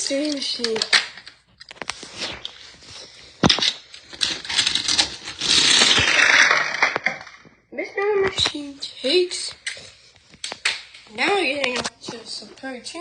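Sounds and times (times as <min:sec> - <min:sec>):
toy car wheels rattling on track: 0:04.1 - 0:07.4
clicks: 0:09.5 - 0:12.2.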